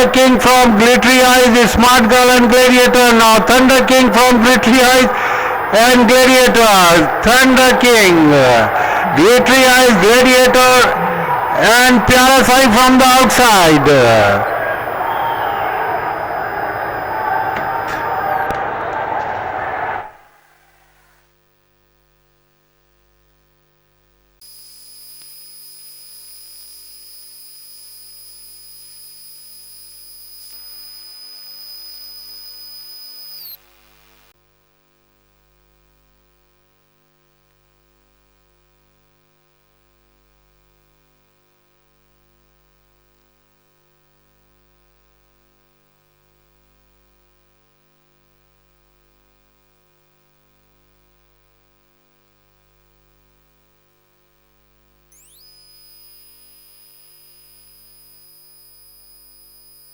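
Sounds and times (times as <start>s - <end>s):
faint electrical hum: 0.0s - 59.9s
high-pitched electronic tone: 24.9s - 33.6s, 55.2s - 59.9s.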